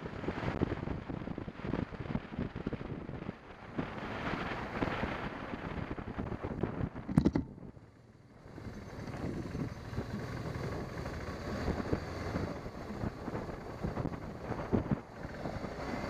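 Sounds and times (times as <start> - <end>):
wind rushing over microphone: 0.0 - 16.0
sharp knocks: 7.1 - 7.6
motorcycle engine: 7.1 - 16.0.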